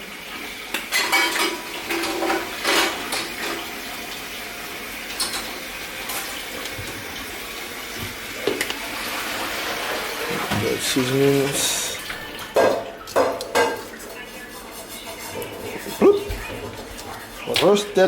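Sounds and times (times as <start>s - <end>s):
dishes and utensils clinking: 0.7s - 3.8s, 5.1s - 7.0s, 10.3s - 18.0s
tap running into a sink: 5.1s - 7.3s, 7.9s - 8.8s, 12.1s - 14.0s.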